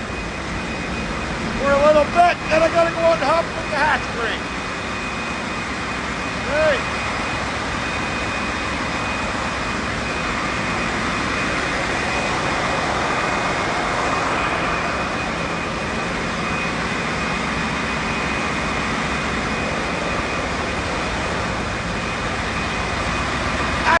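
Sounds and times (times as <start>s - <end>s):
engine room machinery din: 0.0s - 24.0s.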